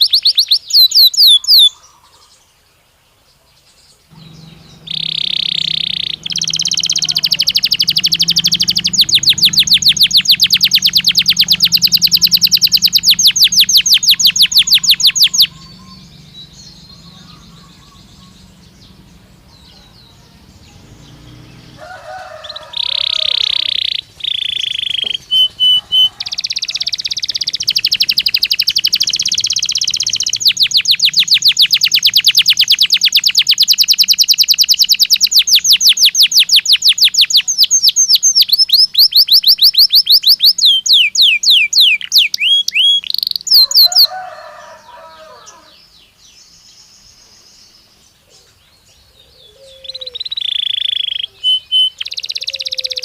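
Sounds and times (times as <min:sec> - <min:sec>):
canary singing trills: 0:00.0 - 0:02.7, 0:03.4 - 0:53.0
soft low chirps: 0:04.1 - 0:21.8, 0:22.6 - 0:35.6.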